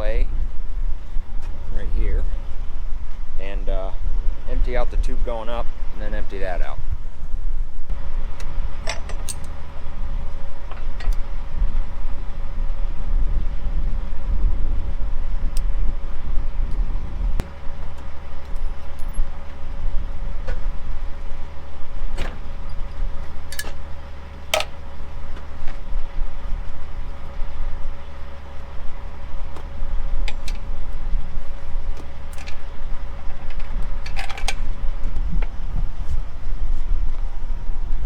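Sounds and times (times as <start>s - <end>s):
faint hum: 0.0s - 38.0s
low rumble: 0.0s - 38.0s
sharp metallic clinks and knocks: 8.8s - 9.6s, 17.4s - 19.5s.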